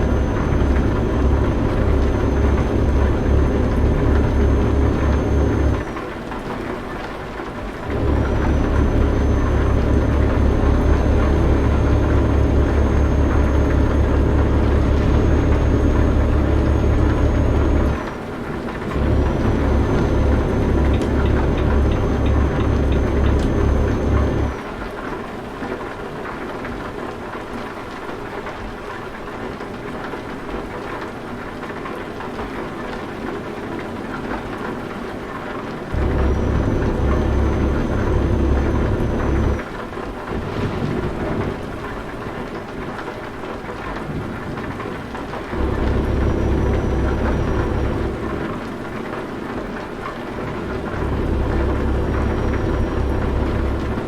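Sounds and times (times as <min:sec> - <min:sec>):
truck engine rumble: 0:00.0 - 0:06.3, 0:07.5 - 0:24.6, 0:35.9 - 0:43.2, 0:43.9 - 0:54.0
steady rain: 0:00.0 - 0:54.0.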